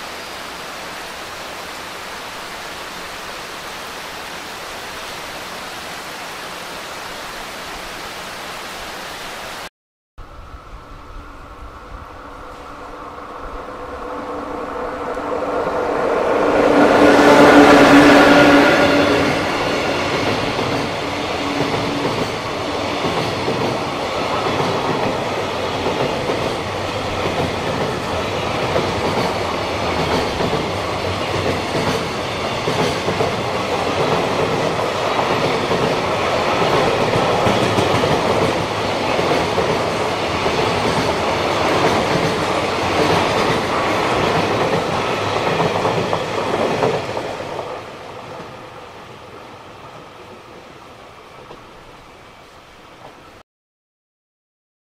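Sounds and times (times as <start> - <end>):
electric locomotive humming: 10.2 - 53.4
freight train rumble and clickety-clack: 12.4 - 49.4.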